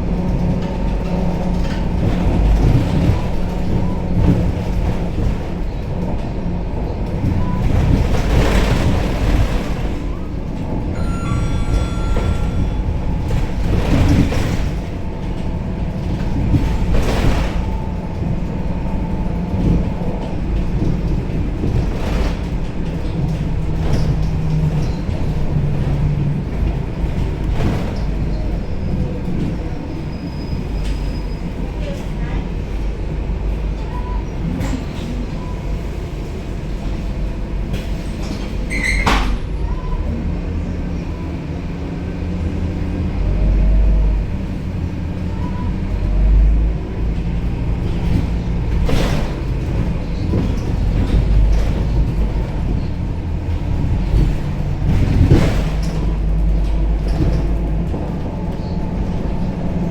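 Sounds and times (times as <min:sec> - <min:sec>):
bus diesel engine rumble: 0:00.0 - 0:59.9
short beep tone: 0:10.9 - 0:13.4.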